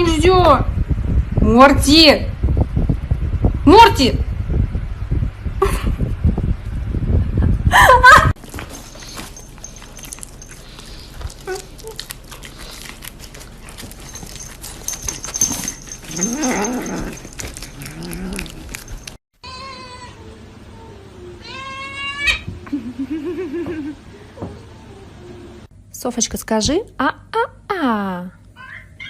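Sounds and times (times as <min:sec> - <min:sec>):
cats meowing and yowling: 0:19.4 - 0:20.3, 0:21.4 - 0:22.5.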